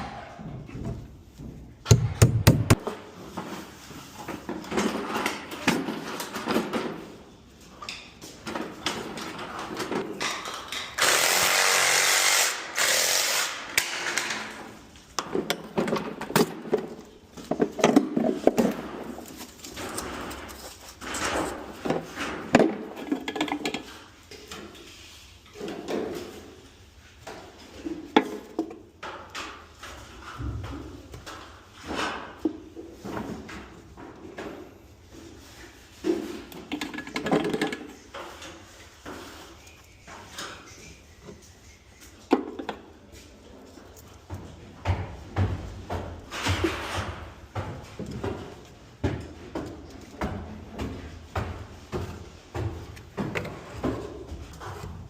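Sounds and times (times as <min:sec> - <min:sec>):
tools knocking and scraping: 0:00.0 - 0:11.3, 0:13.7 - 0:55.0
power tool running: 0:11.0 - 0:13.6.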